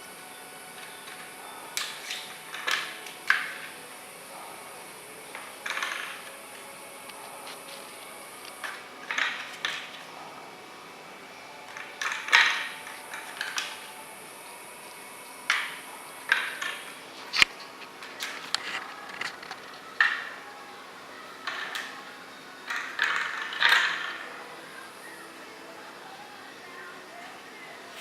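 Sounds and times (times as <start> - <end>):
toy knocking and rattling: 0.8 - 3.9, 5.3 - 6.5, 7.6 - 10.0, 11.7 - 14.0, 15.4 - 17.0, 21.4 - 22.0, 22.6 - 24.4.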